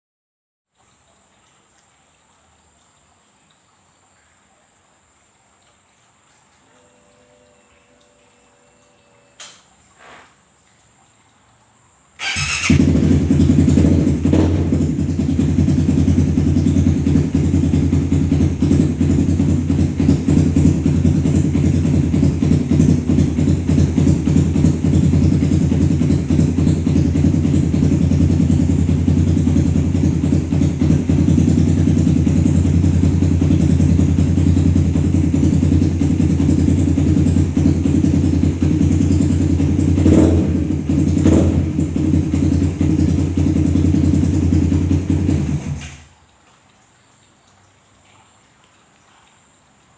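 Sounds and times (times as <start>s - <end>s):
motorcycle engine idling loudly: 12.2s - 46.0s.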